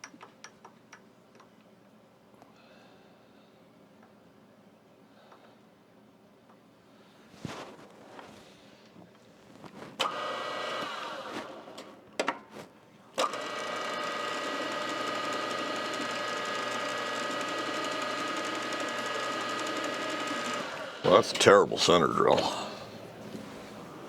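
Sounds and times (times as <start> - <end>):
milling machine motor whine: 13.2 - 21.5.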